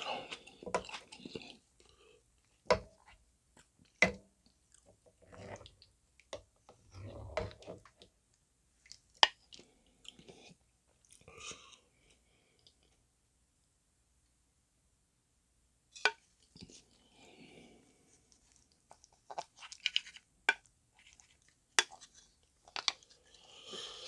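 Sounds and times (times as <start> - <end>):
person chewing wetly: 0.1 - 1.9, 18.3 - 24.0.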